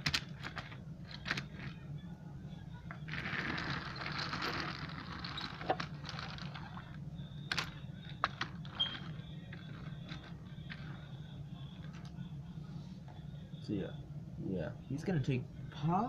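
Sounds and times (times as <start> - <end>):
low hum: 0.0 - 15.8.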